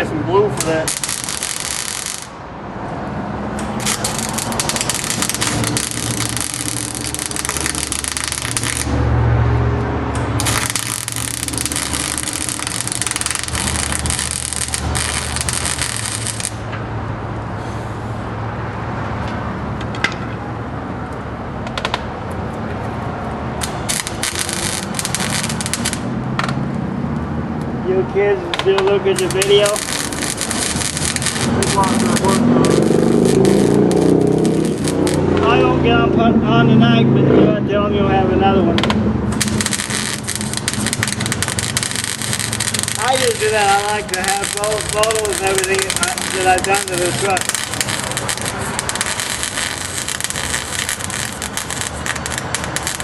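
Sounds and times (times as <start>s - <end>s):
arc welding hiss: 0.5s - 2.4s, 3.6s - 9.0s, 10.2s - 16.7s, 23.6s - 26.1s, 29.1s - 35.3s, 39.3s - 53.0s.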